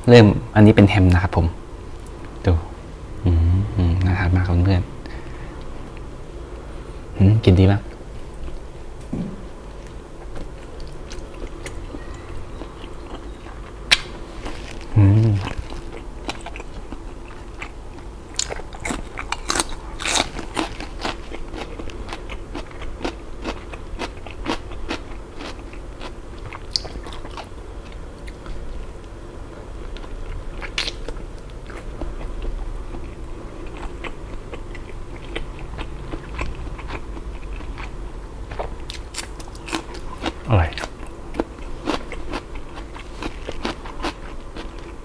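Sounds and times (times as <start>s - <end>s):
person biting and chewing: 9.2s - 27.5s, 29.9s - 37.9s, 38.5s - 45.0s.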